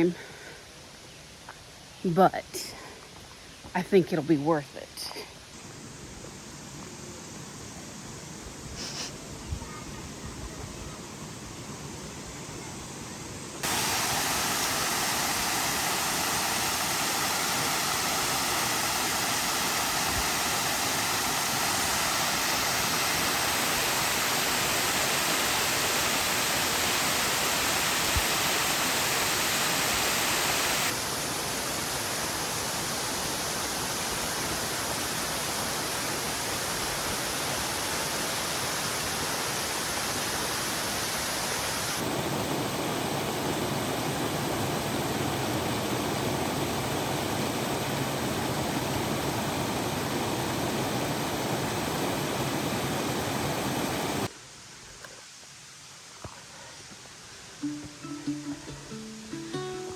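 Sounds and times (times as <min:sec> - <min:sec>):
waterfall rushing: 0:13.6 - 0:54.3.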